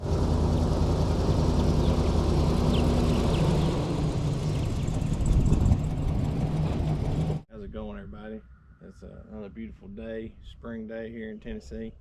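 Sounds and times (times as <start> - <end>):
vehicle engine running: 0.0 - 7.5.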